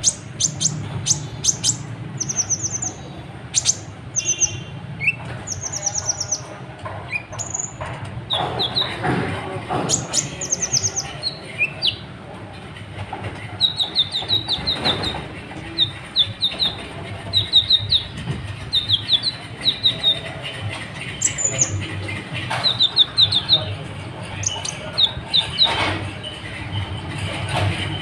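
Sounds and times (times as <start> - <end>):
sunbird twittering song: 0.0 - 6.5, 9.8 - 12.0, 13.6 - 20.4, 22.5 - 25.8.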